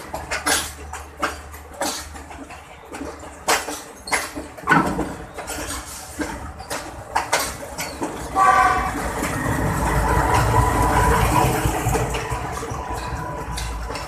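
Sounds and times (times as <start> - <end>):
train wheels clicking over joints: 0.0 - 14.0
diesel locomotive passing: 5.2 - 14.0
train horn blast: 8.3 - 9.0.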